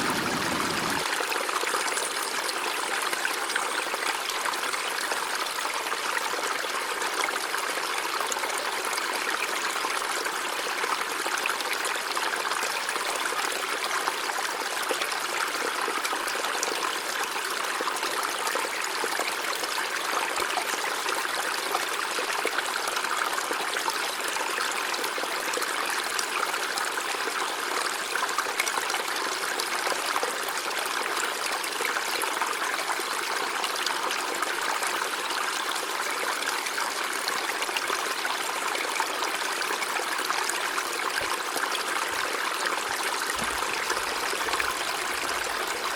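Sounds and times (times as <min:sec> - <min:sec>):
river flowing over rocks: 0:00.0 - 0:06.0, 0:34.9 - 0:45.9.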